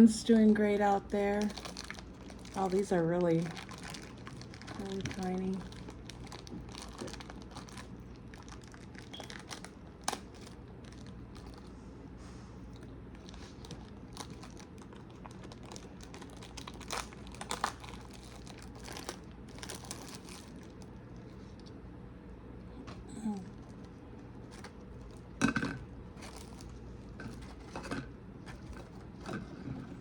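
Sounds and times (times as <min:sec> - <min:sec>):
steady low hum: 0:00.0 - 0:30.0
plastic packaging crinkling: 0:00.2 - 0:11.7, 0:12.8 - 0:21.7, 0:23.6 - 0:25.4, 0:26.1 - 0:29.4.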